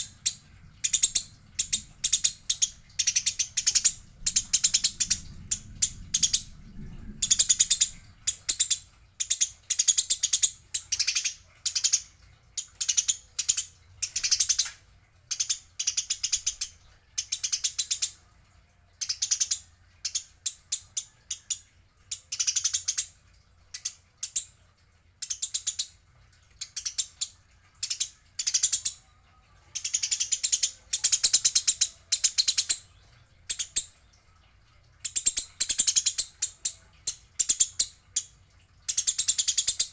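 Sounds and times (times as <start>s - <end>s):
sparrows chattering: 0.0s - 6.6s.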